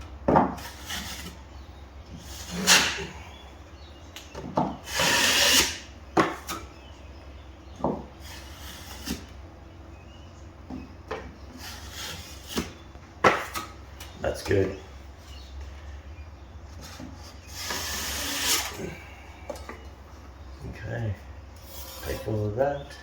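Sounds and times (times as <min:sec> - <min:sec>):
drywall blade scraping compound: 0:00.5 - 0:01.4, 0:02.2 - 0:03.3, 0:04.8 - 0:06.6, 0:08.2 - 0:09.3, 0:11.5 - 0:12.8, 0:16.8 - 0:19.0, 0:21.6 - 0:22.6.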